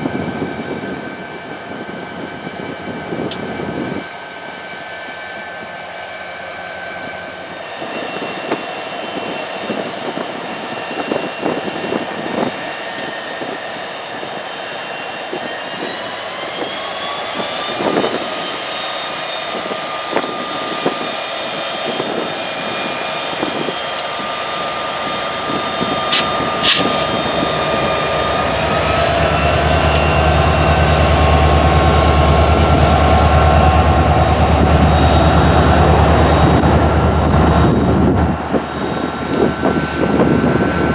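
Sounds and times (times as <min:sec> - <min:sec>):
diesel locomotive engines: 0:00.0 - 0:40.9
turbocharger whine: 0:15.3 - 0:40.9.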